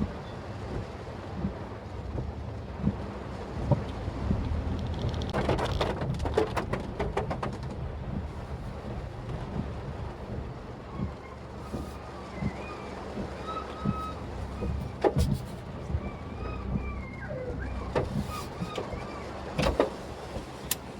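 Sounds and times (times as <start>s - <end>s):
car engine rumbling: 0.0s - 20.9s
clicks and knocks: 4.7s - 7.9s.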